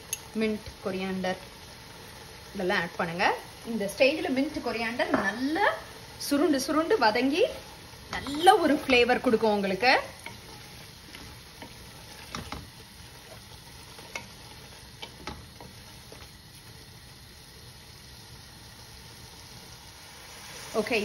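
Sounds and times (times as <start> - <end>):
vegetables sizzling faintly: 0.0 - 21.0
spatula scraping and tapping pot: 10.2 - 16.3.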